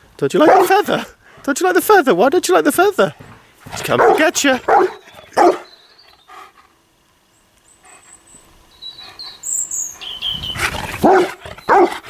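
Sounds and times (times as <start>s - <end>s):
birds chirping: 2.4s - 12.0s.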